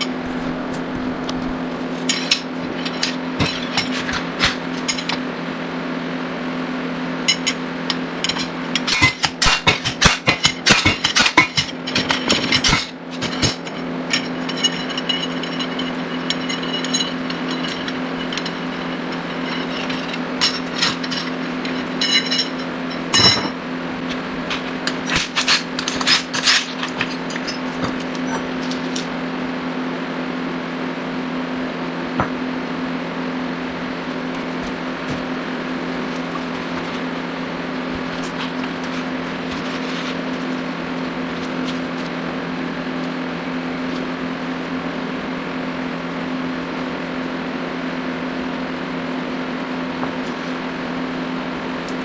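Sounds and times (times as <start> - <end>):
steady low hum: 0.0 - 52.0
metallic ring: 2.0 - 5.2, 7.2 - 29.1.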